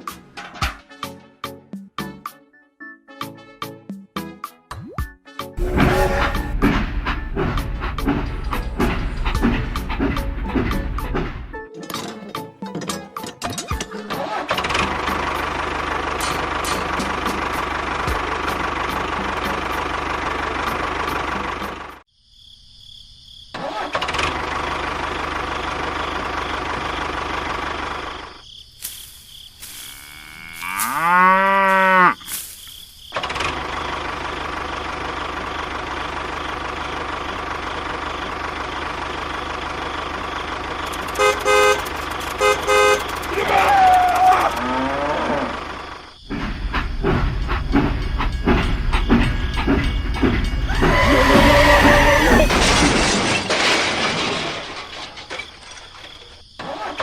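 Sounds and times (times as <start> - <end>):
cow mooing: 5.6 - 6.6, 29.9 - 32.2, 44.3 - 45.6, 50.7 - 52.5
short horn toots: 5.6 - 6.8, 41.1 - 43.1
engine running: 5.6 - 11.6, 14.4 - 22.0, 24.1 - 28.4, 33.2 - 55.2.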